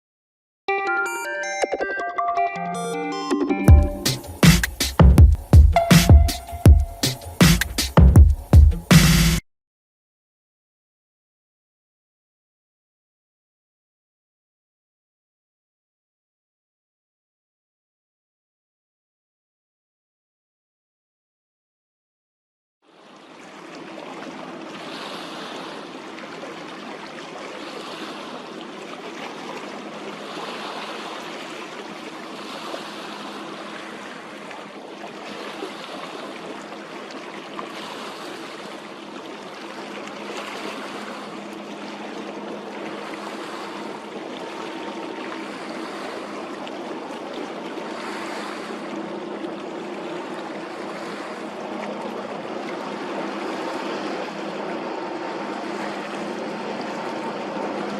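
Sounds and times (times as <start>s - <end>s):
boat engine hum: 3.0s - 9.4s, 22.9s - 57.9s
sea water splashing: 22.9s - 57.9s.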